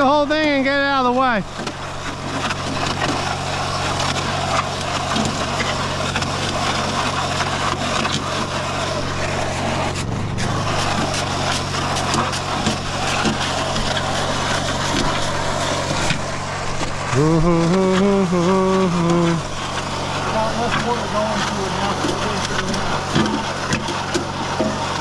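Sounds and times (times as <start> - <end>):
concrete churning in drum: 0.0 - 25.0
concrete mixer motor humming: 0.0 - 25.0
loud wavering tone: 9.1 - 13.1.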